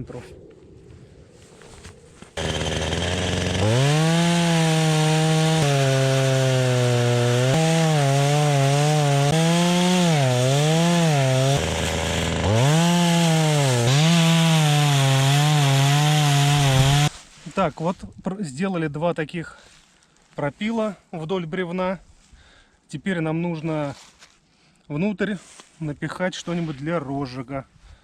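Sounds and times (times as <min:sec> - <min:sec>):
chainsaw cutting log: 0:02.4 - 0:17.1.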